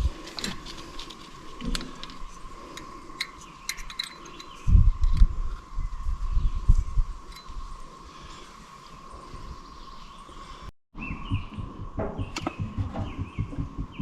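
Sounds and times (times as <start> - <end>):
low thumps: 11.1 - 14.0.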